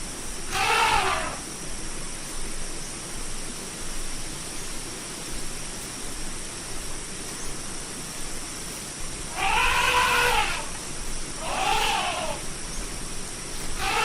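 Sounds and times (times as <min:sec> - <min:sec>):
steady hiss: 0:00.0 - 0:14.0
elephant trumpeting: 0:00.5 - 0:01.4, 0:09.3 - 0:10.7, 0:11.4 - 0:12.4, 0:13.8 - 0:14.0.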